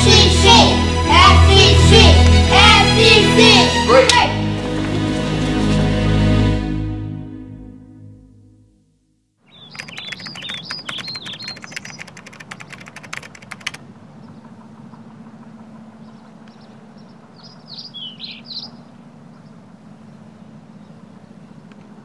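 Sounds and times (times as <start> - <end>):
birds chirping: 9.4 - 22.0
rapid clicks: 9.6 - 15.5
steady low hum: 11.9 - 22.0.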